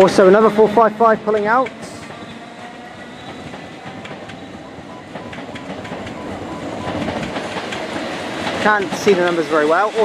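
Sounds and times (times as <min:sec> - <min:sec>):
wheels clicking over rail joints: 0:00.0 - 0:09.8
passenger train passing: 0:00.0 - 0:10.0.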